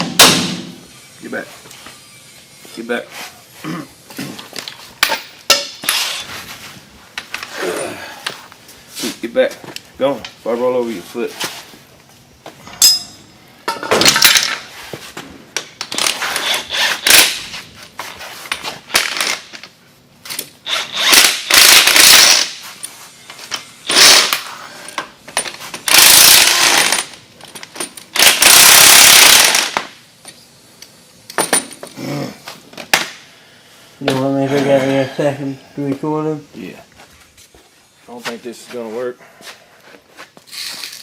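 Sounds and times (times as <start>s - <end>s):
power tool bursts: 20.7s - 22.6s, 23.8s - 24.5s, 25.9s - 27.1s, 28.2s - 29.9s.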